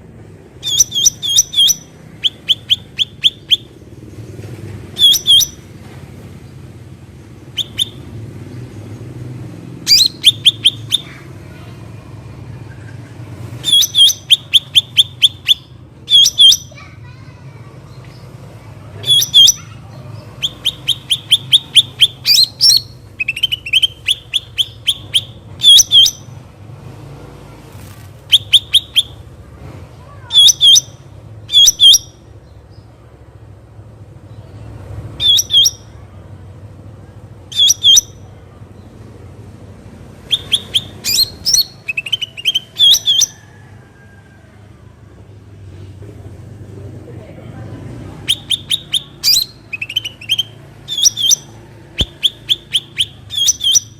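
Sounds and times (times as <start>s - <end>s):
bird chirping: 0.6s - 3.8s, 4.9s - 5.7s, 7.5s - 9.2s, 9.8s - 11.2s, 12.6s - 16.8s, 19.0s - 26.4s, 28.3s - 29.2s, 30.3s - 32.8s, 35.2s - 36.0s, 37.5s - 39.0s, 40.2s - 43.4s, 48.2s - 53.9s.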